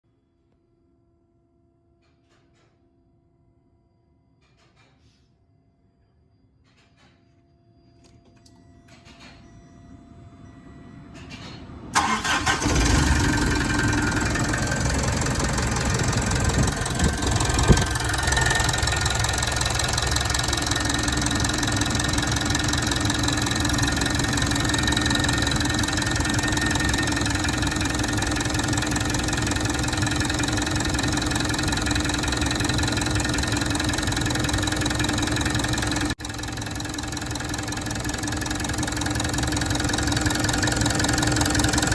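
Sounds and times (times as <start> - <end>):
diesel engine starting and running: 11.2 - 41.9.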